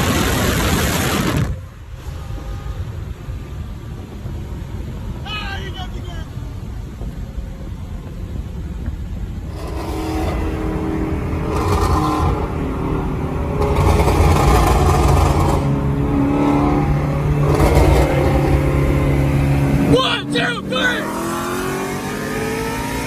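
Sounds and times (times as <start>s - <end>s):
loud car engine accelerating: 9.5s - 23.0s.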